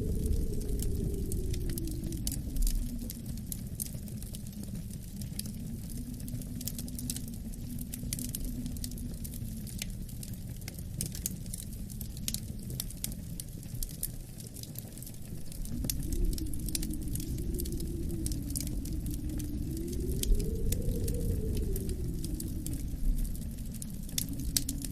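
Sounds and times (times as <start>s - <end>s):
wind rushing: 0.0s - 4.6s, 15.3s - 24.9s
wood fire crackling: 0.0s - 24.9s.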